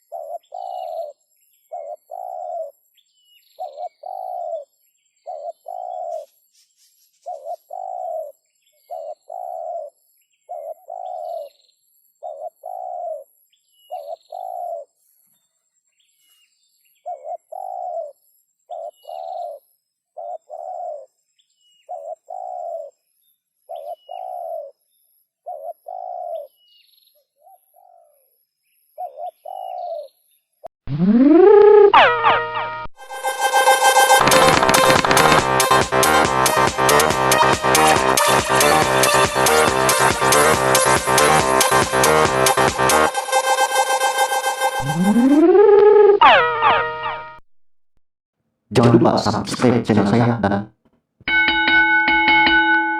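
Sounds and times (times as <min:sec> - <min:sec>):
dove cooing: 0:00.0 - 0:01.1, 0:01.7 - 0:02.7, 0:03.6 - 0:04.6, 0:05.3 - 0:06.3, 0:07.3 - 0:08.3, 0:08.9 - 0:09.9, 0:10.5 - 0:11.5, 0:12.2 - 0:13.2, 0:13.9 - 0:14.9, 0:17.1 - 0:18.1, 0:18.7 - 0:19.6, 0:20.2 - 0:21.1, 0:21.9 - 0:22.9, 0:23.7 - 0:24.7, 0:25.5 - 0:26.5.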